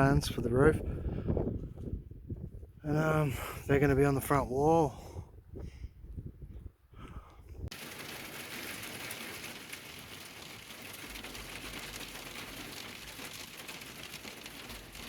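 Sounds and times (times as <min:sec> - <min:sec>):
rain pattering on a surface: 0:07.7 - 0:15.0.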